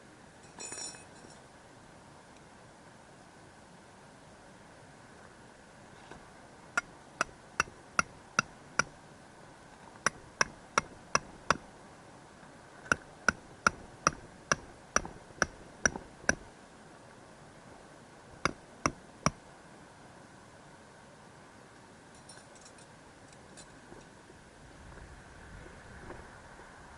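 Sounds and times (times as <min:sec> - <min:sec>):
hammer driving metal tent pegs: 0:10.1 - 0:11.7, 0:12.9 - 0:16.5.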